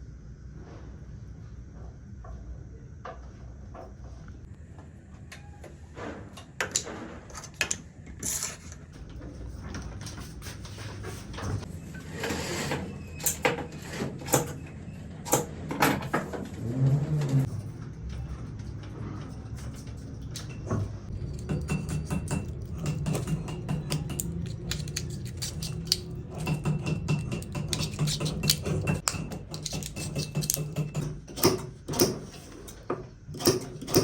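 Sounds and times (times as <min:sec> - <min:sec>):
metal parts and tools clicking: 0:20.2 - 0:32.8.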